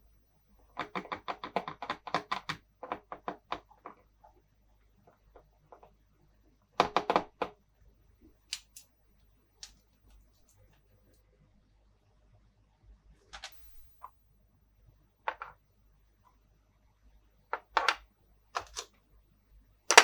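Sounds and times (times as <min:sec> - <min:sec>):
plastic toy pieces clicking: 0:18.6 - 0:18.9.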